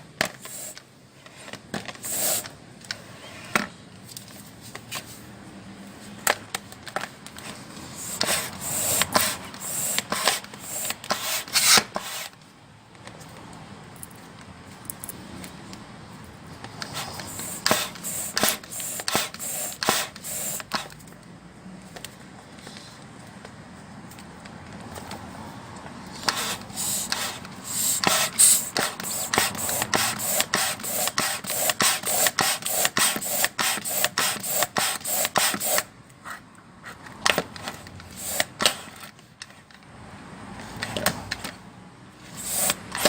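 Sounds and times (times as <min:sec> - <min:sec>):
hand pump puffing air: 0:00.3 - 0:00.8, 0:02.0 - 0:02.6, 0:07.5 - 0:12.4, 0:16.8 - 0:21.0, 0:26.1 - 0:35.9, 0:37.2 - 0:39.1, 0:42.2 - 0:43.0.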